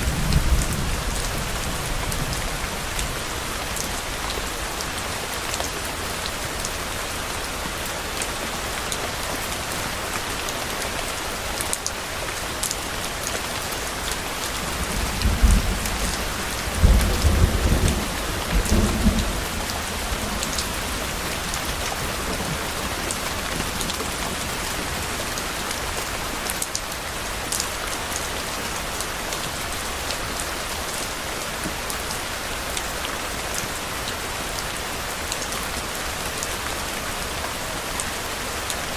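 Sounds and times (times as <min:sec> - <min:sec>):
steady rain falling: 0:00.0 - 0:38.9
thunder rumbling: 0:14.7 - 0:24.9.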